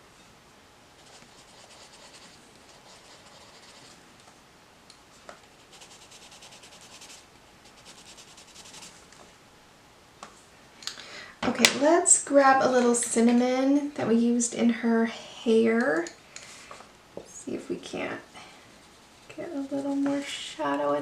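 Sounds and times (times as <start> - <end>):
pencil scratching on paper: 1.0 - 3.9, 5.6 - 9.0.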